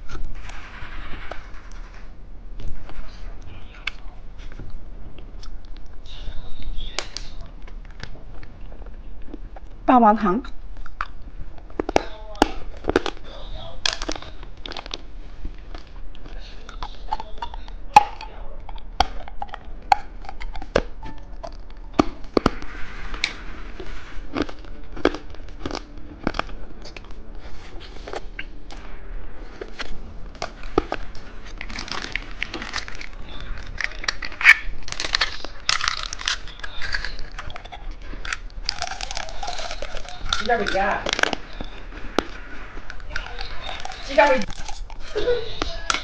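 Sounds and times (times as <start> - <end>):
crinkling: 0.0 - 46.0
hard candy crunching: 2.6 - 46.0.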